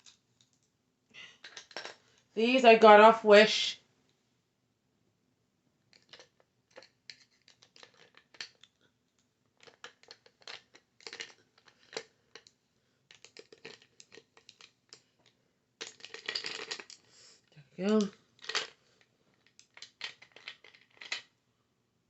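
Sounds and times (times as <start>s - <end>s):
makeup brushes clicking and rustling: 1.4s - 2.1s, 5.9s - 17.1s, 17.8s - 21.3s.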